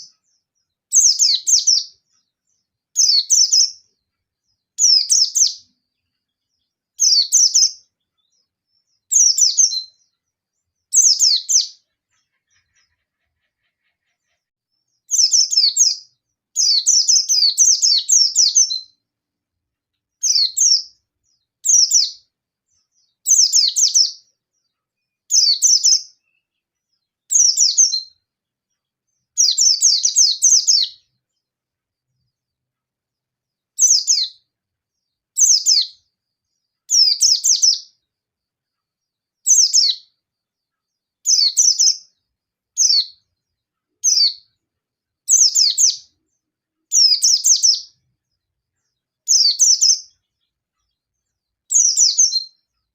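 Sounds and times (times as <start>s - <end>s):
bird twittering: 0.0s - 2.0s, 3.0s - 3.8s, 4.8s - 5.7s, 7.0s - 10.2s, 10.8s - 19.0s, 20.2s - 22.2s, 23.0s - 24.3s, 25.3s - 26.6s, 33.8s - 34.4s, 41.2s - 42.0s, 42.8s - 43.2s, 44.0s - 44.5s, 45.3s - 46.1s, 46.9s - 47.9s, 49.3s - 50.4s, 51.7s - 52.6s.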